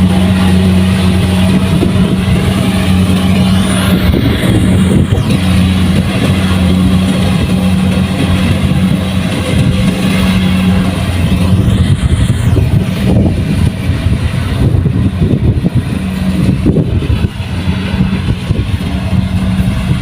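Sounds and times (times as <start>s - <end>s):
combine harvester engine humming: 0.0s - 20.0s.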